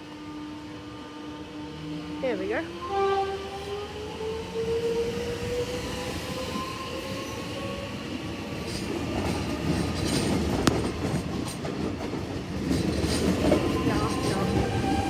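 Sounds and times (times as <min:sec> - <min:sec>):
train wheels clattering over rails: 0:07.2 - 0:15.0.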